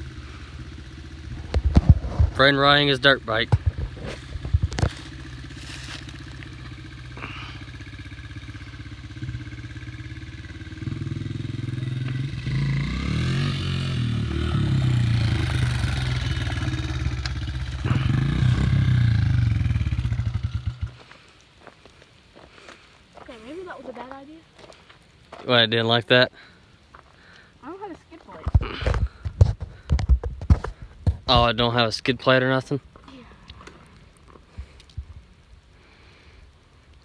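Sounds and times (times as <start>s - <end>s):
dirt bike engine revving: 0.0s - 21.1s.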